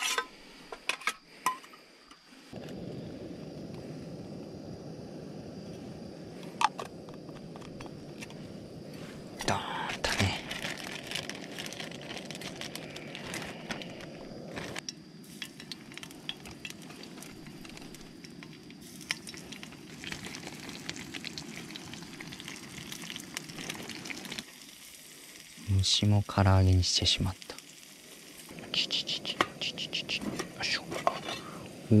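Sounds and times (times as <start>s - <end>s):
plastic bag crinkling: 9.9s - 14.8s
oil sizzling in frying pan: 15.2s - 28.7s.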